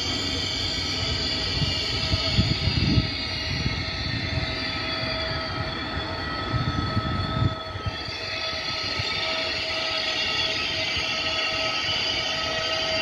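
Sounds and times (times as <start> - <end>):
electric train whine and rumble: 0.0 - 13.0
wind buffeting microphone: 1.1 - 9.2.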